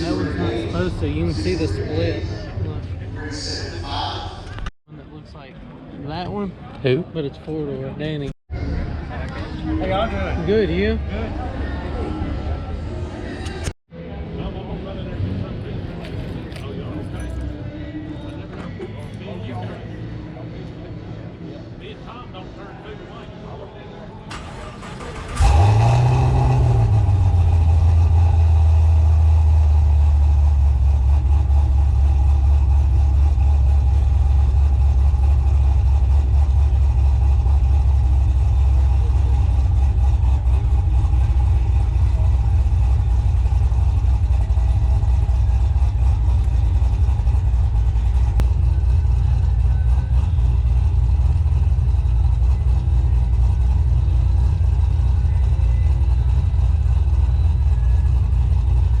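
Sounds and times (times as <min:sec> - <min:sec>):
car engine starting and idling: 0:24.2 - 0:59.0.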